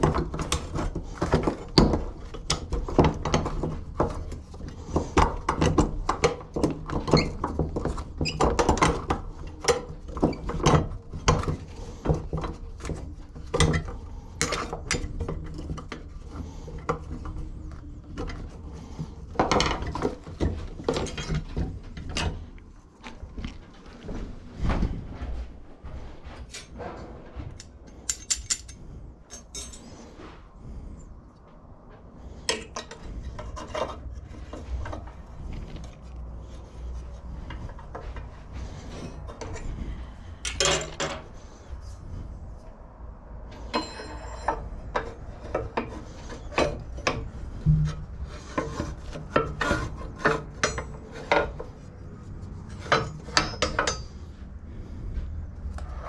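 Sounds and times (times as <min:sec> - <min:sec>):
metallic clicks of hand tools: 0:27.6 - 0:29.9.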